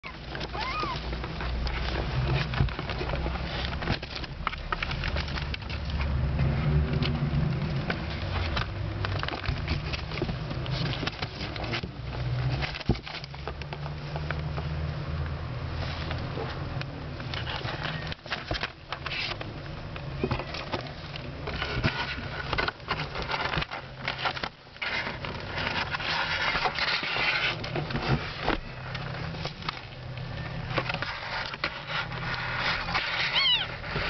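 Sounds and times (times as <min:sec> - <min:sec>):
kitten mewing: 0:00.0 - 0:01.1, 0:33.3 - 0:33.8
kittens scampering: 0:00.0 - 0:05.9, 0:17.3 - 0:34.0
paw clicks and scratches: 0:00.0 - 0:34.0.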